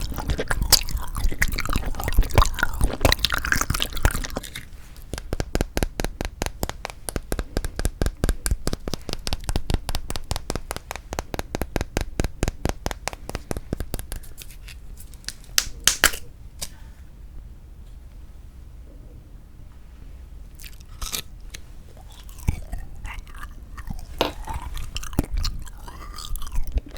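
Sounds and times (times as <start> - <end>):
loud plastic cracks: 15.2 - 16.2.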